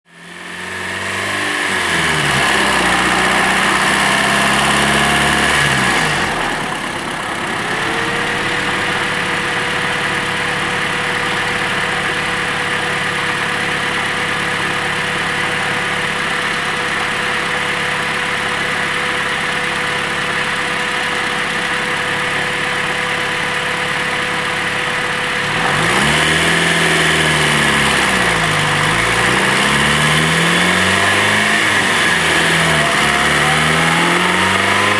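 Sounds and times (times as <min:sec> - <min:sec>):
engine revving: 0:00.1 - 0:18.9, 0:24.6 - 0:34.9
car engine idling: 0:01.6 - 0:34.9
turbo whine: 0:26.3 - 0:34.9.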